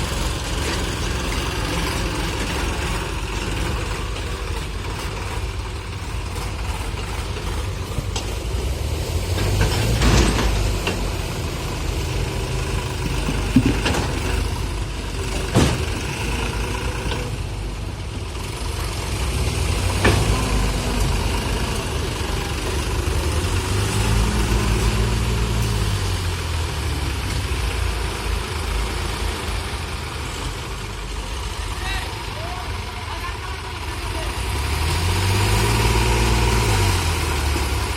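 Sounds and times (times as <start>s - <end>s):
diesel engine running: 0.0s - 37.9s
sharp metal knocks and clanks: 9.3s - 11.4s, 12.1s - 17.3s.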